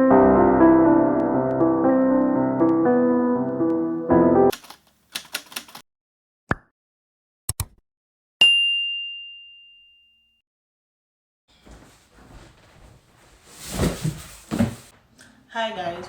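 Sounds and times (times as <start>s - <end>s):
piano music: 0.0s - 4.5s
quick sharp clicks and clacks: 4.5s - 5.8s
high bell-like ding: 8.4s - 10.4s.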